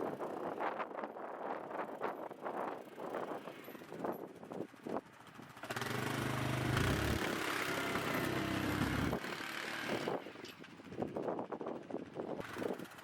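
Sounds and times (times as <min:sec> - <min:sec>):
vehicle engine running: 0:03.9 - 0:13.0.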